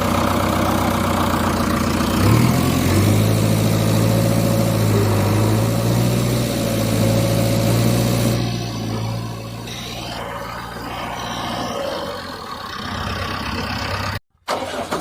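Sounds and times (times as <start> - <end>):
vehicle engine idling: 0.0 - 14.2.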